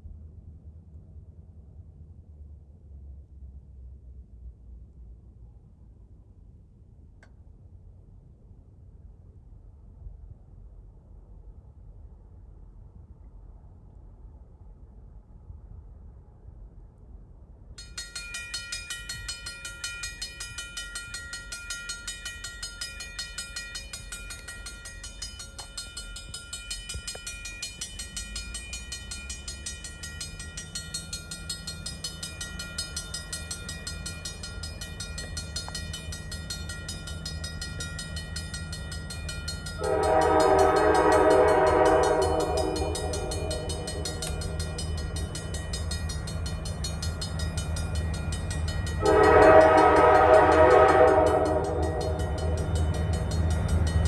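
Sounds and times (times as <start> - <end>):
railroad crossing bell ringing: 17.8 - 54.0
diesel locomotive rumble: 23.5 - 54.0
locomotive air horn blast: 39.8 - 44.4, 49.0 - 52.6.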